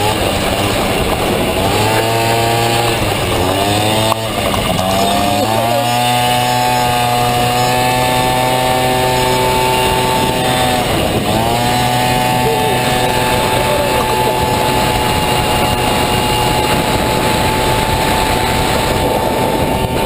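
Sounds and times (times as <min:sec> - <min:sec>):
scooter engine revving: 0:00.0 - 0:20.0.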